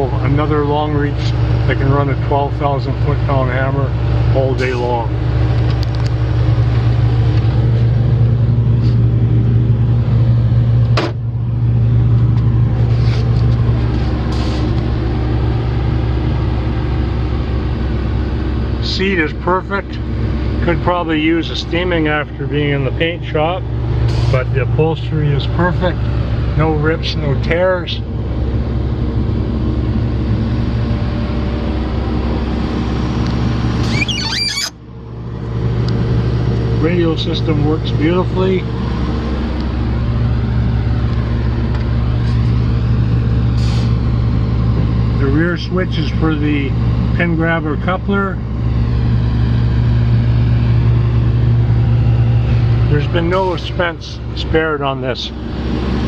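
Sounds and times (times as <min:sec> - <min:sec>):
diesel engine running: 0:00.0 - 0:56.0
high squeaky chirping: 0:33.8 - 0:34.8.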